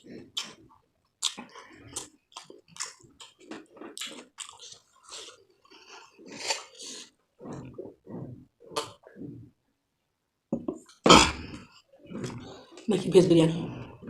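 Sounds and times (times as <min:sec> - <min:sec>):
person chewing crunchy food: 0:00.0 - 0:09.5.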